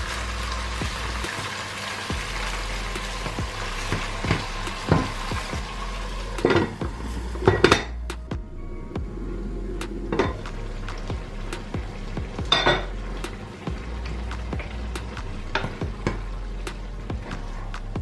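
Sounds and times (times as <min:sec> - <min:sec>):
dishes and cutlery clinking: 0:06.4 - 0:06.8, 0:07.4 - 0:08.0, 0:12.5 - 0:12.9.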